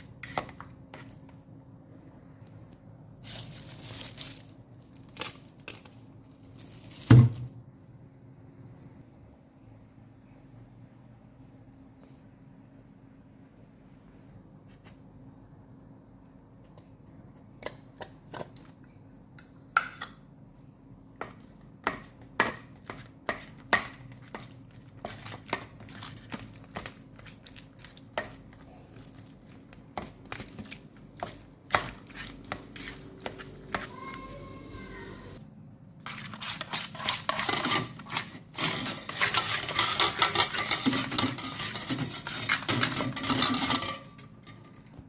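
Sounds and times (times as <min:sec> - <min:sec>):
faint steady hum: 0:07.5 - 0:36.2.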